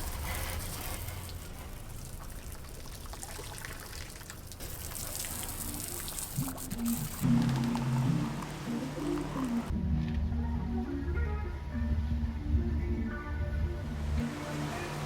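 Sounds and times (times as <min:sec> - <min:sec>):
water pouring from hose: 0:00.0 - 0:08.1
music: 0:06.5 - 0:15.0.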